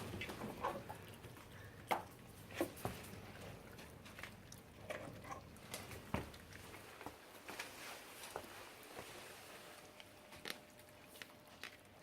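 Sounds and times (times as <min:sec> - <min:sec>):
puppies chewing bones: 0:00.0 - 0:07.8, 0:09.8 - 0:12.0.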